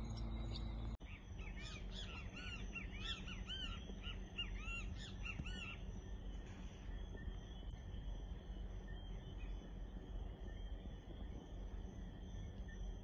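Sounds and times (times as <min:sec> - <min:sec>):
low steady rumble: 0:00.0 - 0:01.0.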